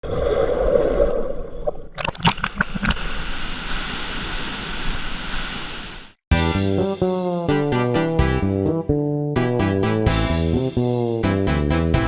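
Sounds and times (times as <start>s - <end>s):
water splashes: 0.1s - 5.3s.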